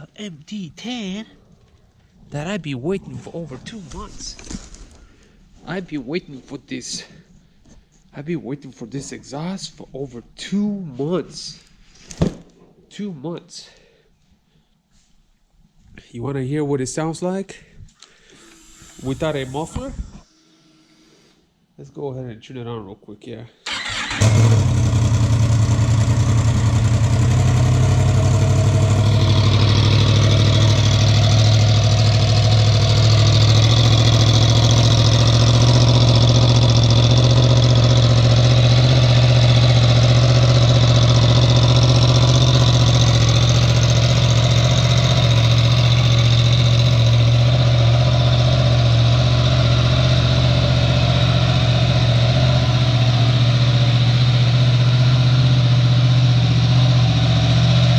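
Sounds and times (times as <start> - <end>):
motorcycle engine idling: 23.7 - 57.9.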